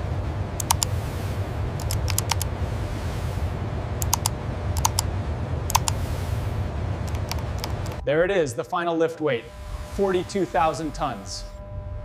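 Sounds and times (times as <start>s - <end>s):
low machinery rumble: 0.0s - 12.0s
small sharp clicks: 0.6s - 0.9s, 1.8s - 2.5s, 4.0s - 5.1s, 5.7s - 6.0s, 7.1s - 8.0s.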